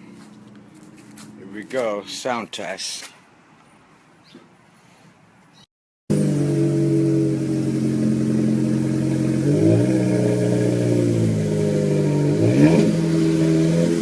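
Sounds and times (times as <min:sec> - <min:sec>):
car engine running and revving: 0:00.0 - 0:01.5, 0:06.1 - 0:14.0.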